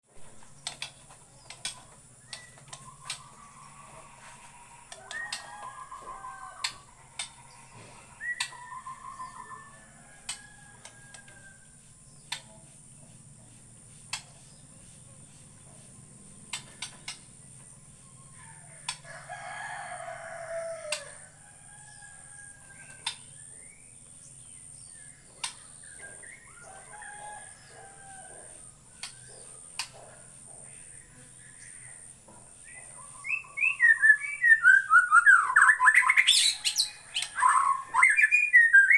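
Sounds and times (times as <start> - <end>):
rooster crowing: 3.2 - 11.8, 18.0 - 22.9, 26.2 - 29.6, 33.0 - 38.9.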